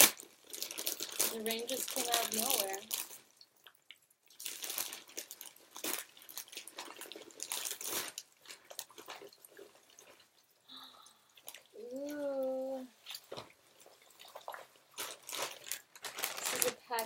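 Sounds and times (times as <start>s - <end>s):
packaging crinkling and tearing: 0.0s - 3.4s, 4.3s - 10.3s, 13.0s - 17.0s.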